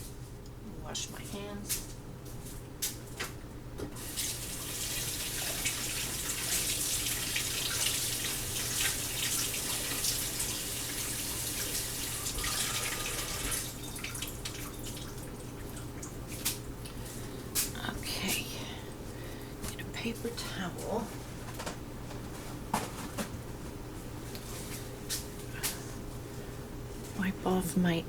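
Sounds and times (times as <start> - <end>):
water splashing into sink: 4.1 - 16.6.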